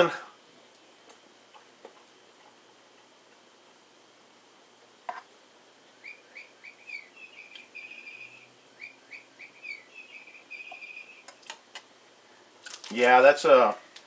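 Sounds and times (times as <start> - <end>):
songbird chirps and trill: 5.9 - 11.6.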